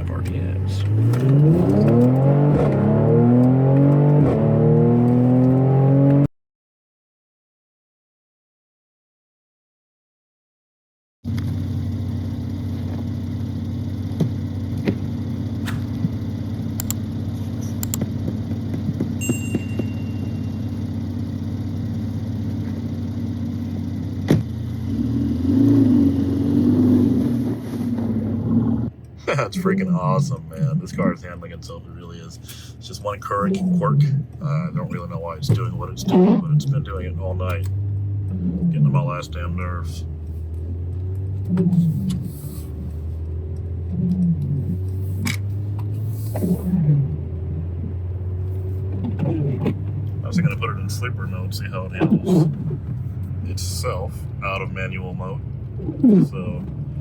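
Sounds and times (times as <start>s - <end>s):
car engine accelerating: 0.0s - 6.3s, 11.3s - 57.0s
sharp click: 16.8s - 17.0s, 17.7s - 18.1s.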